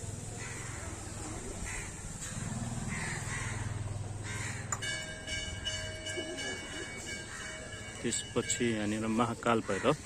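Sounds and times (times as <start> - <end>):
crow cawing: 0.4 - 4.9, 7.2 - 7.8, 9.5 - 10.0
bell ringing: 4.8 - 9.4.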